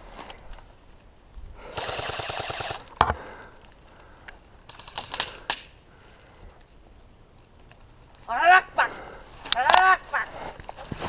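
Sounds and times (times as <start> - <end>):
airsoft gun full-auto burst: 1.7 - 3.0.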